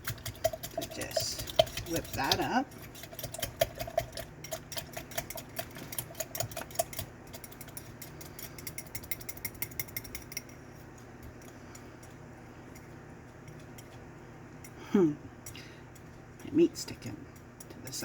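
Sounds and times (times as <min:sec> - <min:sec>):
whisk clicking against cup: 0:00.0 - 0:10.6.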